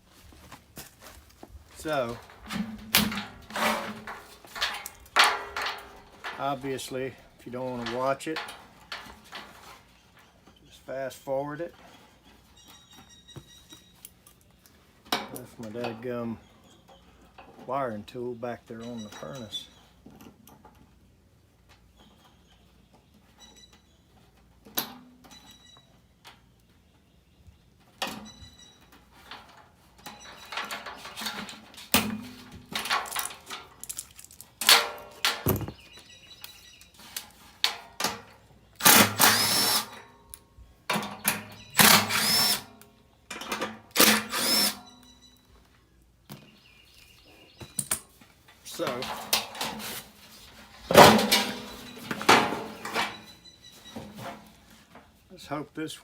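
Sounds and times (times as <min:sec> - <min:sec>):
tools and metal parts clicking: 0:02.8 - 0:06.6, 0:28.0 - 0:35.7
power drill spinning: 0:38.8 - 0:40.0, 0:41.8 - 0:42.7, 0:44.0 - 0:44.8.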